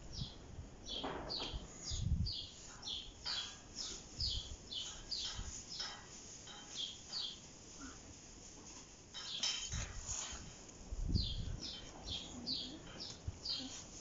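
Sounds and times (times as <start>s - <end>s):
small bird chirping: 0.1s - 5.9s, 6.7s - 8.0s, 11.1s - 13.9s.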